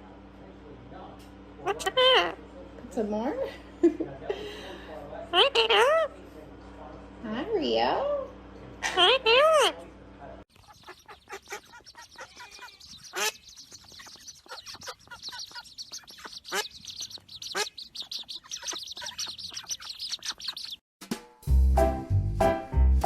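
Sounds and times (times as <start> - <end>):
birds calling: 1.6 - 2.4, 4.7 - 6.3, 8.8 - 9.9, 10.5 - 20.8.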